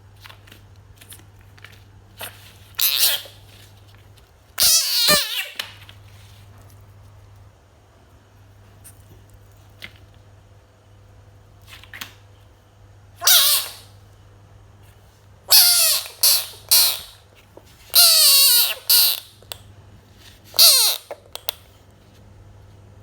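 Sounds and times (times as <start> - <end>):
frog calling: 13.2 - 13.9, 15.5 - 17.2, 18.0 - 19.3, 20.6 - 21.1.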